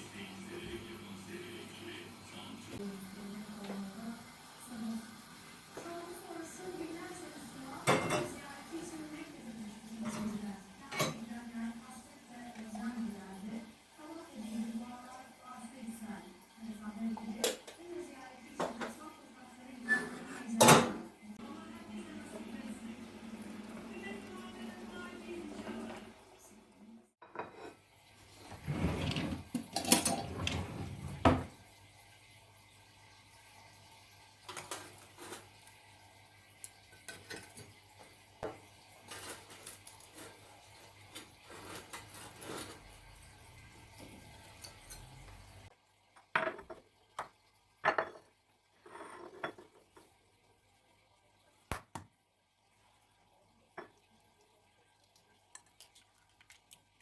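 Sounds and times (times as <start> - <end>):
dishes and cutlery clinking: 7.8 - 8.4, 28.6 - 31.5.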